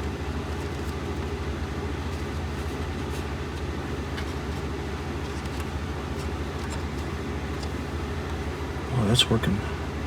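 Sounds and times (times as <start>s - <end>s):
low mechanical hum of machinery: 0.0s - 10.0s.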